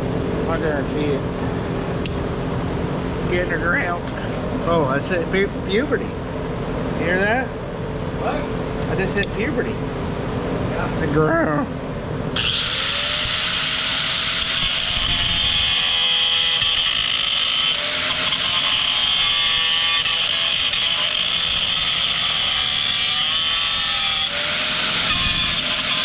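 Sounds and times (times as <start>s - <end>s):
angle grinder grinding steel: 12.4s - 26.0s.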